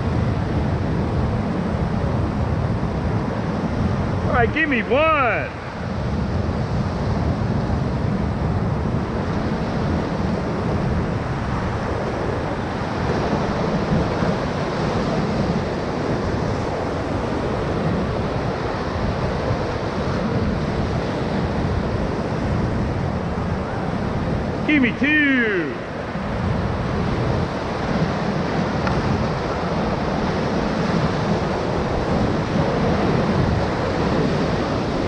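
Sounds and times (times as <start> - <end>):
whitewater roaring: 0.0 - 35.0
wind buffeting microphone: 25.8 - 35.0.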